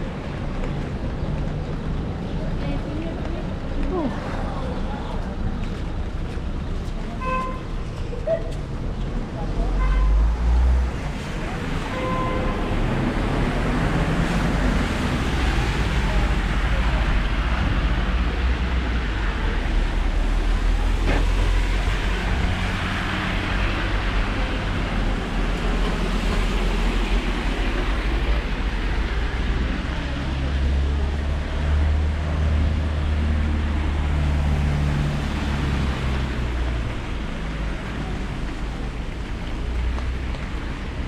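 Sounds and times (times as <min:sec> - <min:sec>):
road traffic going by: 0:00.0 - 0:41.0
steady rain on street: 0:09.6 - 0:41.0.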